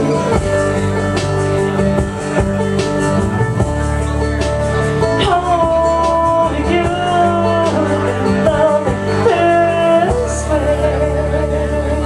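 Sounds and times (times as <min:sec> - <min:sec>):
bass line: 0:00.0 - 0:12.0
guitar: 0:00.0 - 0:12.0
person singing long notes: 0:05.0 - 0:12.0.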